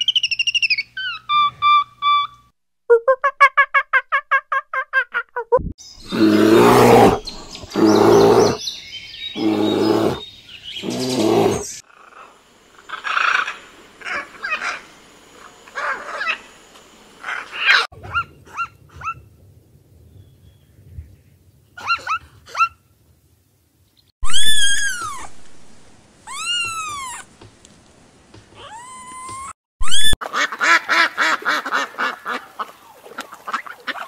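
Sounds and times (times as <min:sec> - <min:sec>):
bear roaring: 0:06.0 - 0:08.6, 0:09.4 - 0:10.2, 0:10.8 - 0:11.7
zebras barking: 0:06.1 - 0:08.6, 0:09.4 - 0:10.2, 0:10.8 - 0:12.3
macaw squawking: 0:24.2 - 0:25.3, 0:28.6 - 0:32.2.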